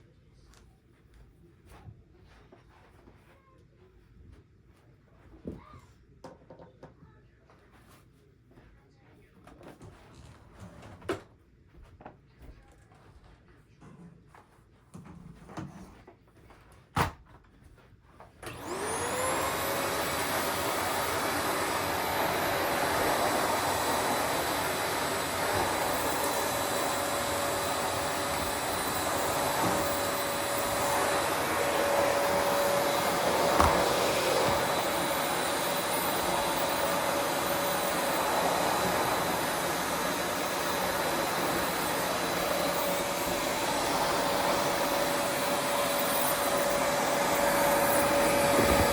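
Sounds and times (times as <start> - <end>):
vacuum cleaner motor running: 18.4 - 48.9.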